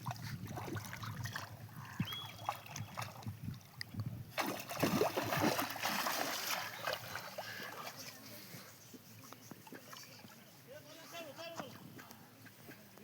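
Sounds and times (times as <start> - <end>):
water splashing and sloshing: 0.0 - 8.6.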